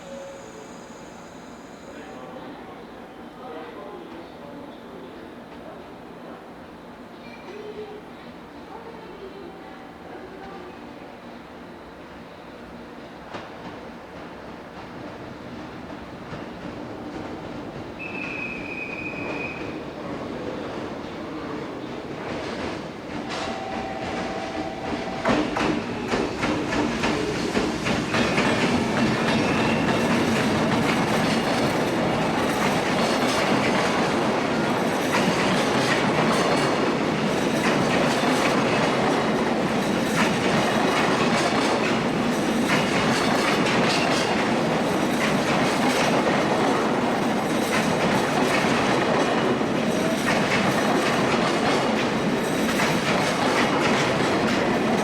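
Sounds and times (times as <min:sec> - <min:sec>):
freight train wheels clattering: 0:21.9 - 0:55.0.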